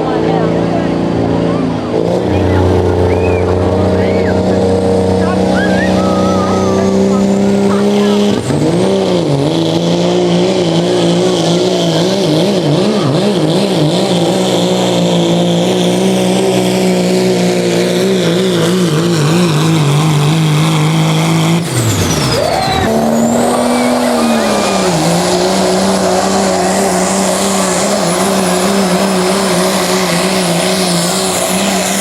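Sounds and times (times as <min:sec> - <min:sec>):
diesel truck engine revving: 0:00.0 - 0:32.0.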